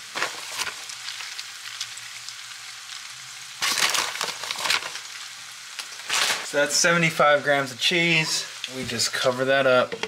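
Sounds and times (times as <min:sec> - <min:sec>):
plastic bag rustling: 0:00.0 - 0:01.2, 0:03.6 - 0:05.1, 0:05.8 - 0:06.6
food sizzling in a frying pan: 0:00.0 - 0:10.0.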